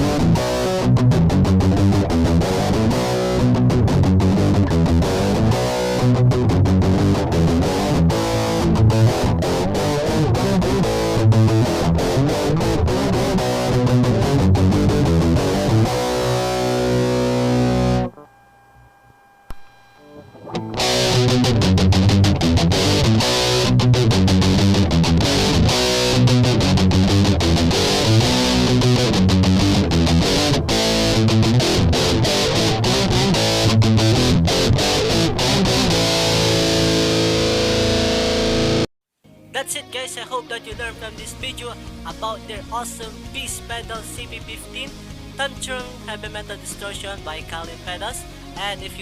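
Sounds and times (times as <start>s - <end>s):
distorted electric guitar riffing: 0.0s - 18.3s, 19.5s - 49.0s
faint hum: 18.1s - 20.8s.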